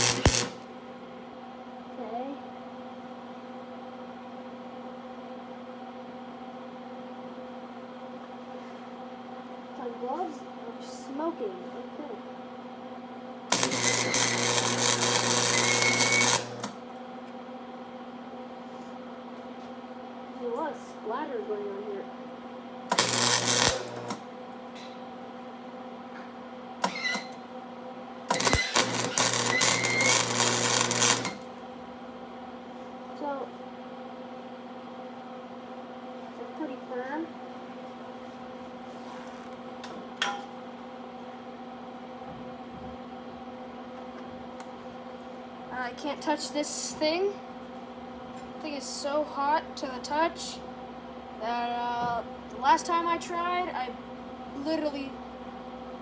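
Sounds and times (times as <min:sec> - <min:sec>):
welding arc sizzling crackle: 0:00.0 - 0:00.8, 0:13.5 - 0:17.0, 0:22.9 - 0:24.4, 0:26.8 - 0:27.4, 0:28.3 - 0:31.8
welder electrical hum: 0:00.0 - 0:01.3, 0:13.3 - 0:56.0.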